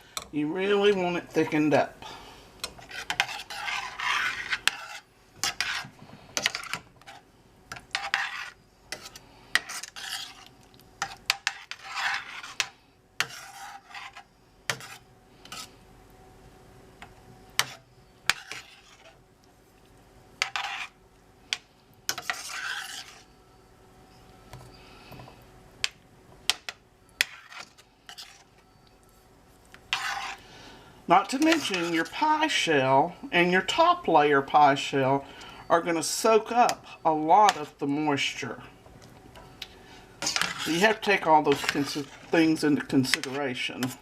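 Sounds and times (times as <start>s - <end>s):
spoon stirring thick filling: 0.0s - 15.8s, 17.0s - 23.4s, 24.1s - 30.5s, 31.1s - 32.8s, 33.4s - 44.0s.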